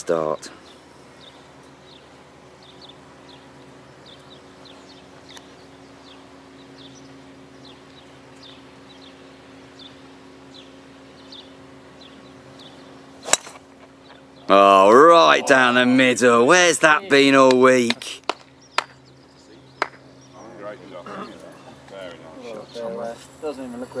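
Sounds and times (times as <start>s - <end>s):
low steady hum: 0.0s - 24.0s
small bird chirping: 0.6s - 13.2s.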